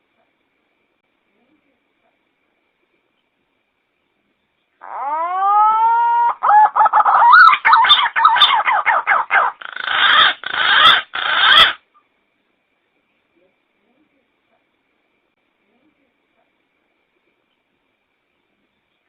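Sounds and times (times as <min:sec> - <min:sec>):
pigeon calling: 0:04.8 - 0:11.8.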